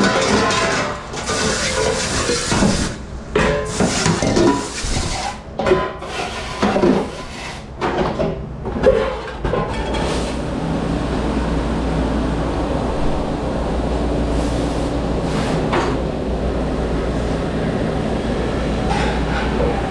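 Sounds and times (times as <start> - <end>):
dishes and trays clattering: 0.0 - 10.1, 18.8 - 19.9
machine hum and rush: 10.1 - 19.9.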